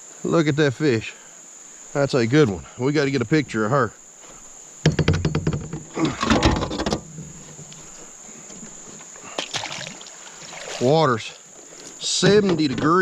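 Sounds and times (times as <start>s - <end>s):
crickets trilling: 0.0s - 13.0s
knocks and rattles with rustling: 4.8s - 7.7s, 12.1s - 13.0s.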